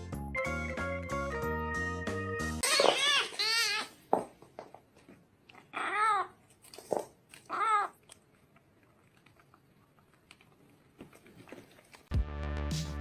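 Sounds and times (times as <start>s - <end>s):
cat meowing: 5.7s - 6.4s, 7.5s - 8.0s.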